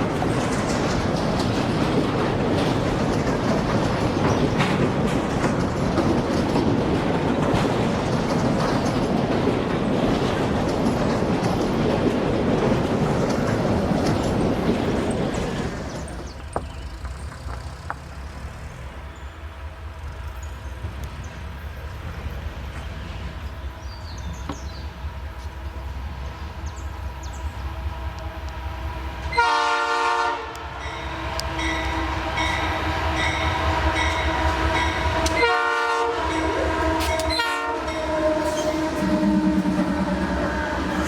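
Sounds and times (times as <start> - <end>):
passing train rumble: 0.0 - 41.0
train air horn blasts: 29.2 - 41.0.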